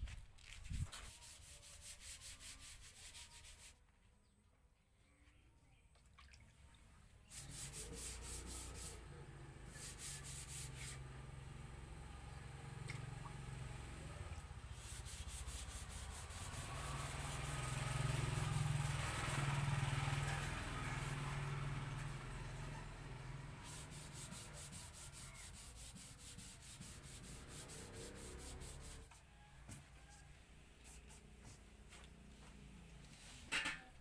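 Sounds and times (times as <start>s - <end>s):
paint sprayer buzzing: 7.3s - 29.1s.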